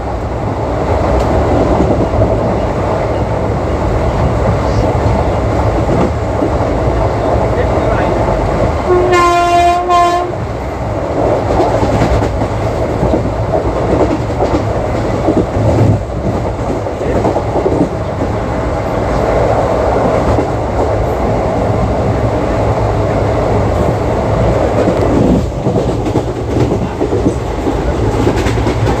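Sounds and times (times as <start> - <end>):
train coach rumbling on track: 0.0 - 29.0
locomotive horn double blast: 8.9 - 10.4.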